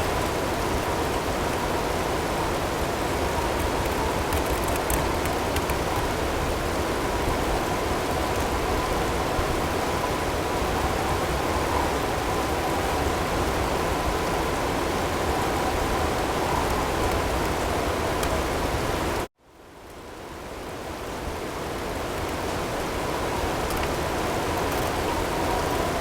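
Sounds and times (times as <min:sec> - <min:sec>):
hail ticks: 0:03.4 - 0:06.3.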